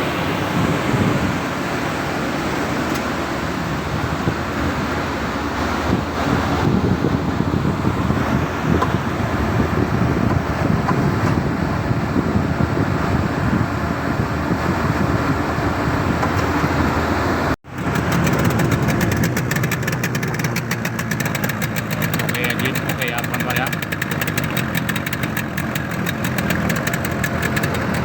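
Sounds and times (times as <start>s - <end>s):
engine rough low rumble: 0.0s - 28.0s
fast even ticking: 17.7s - 28.0s.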